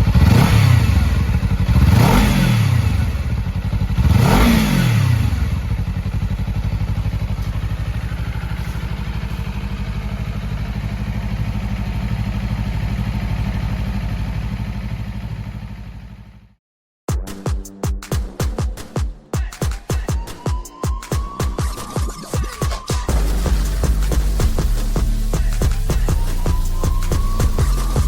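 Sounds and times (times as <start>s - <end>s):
motorcycle engine revving and idling: 0.0s - 16.6s, 23.1s - 28.0s.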